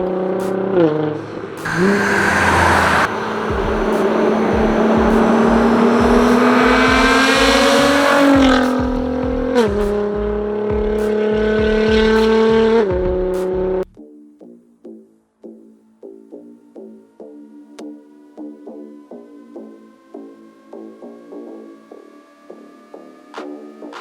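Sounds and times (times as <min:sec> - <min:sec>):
car engine accelerating hard: 0:00.0 - 0:12.8
quiet music: 0:02.5 - 0:24.0.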